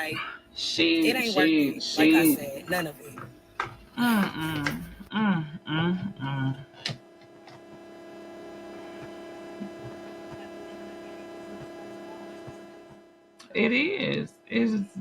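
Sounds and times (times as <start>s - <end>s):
steady multi-pitch drone: 4.0s - 15.0s.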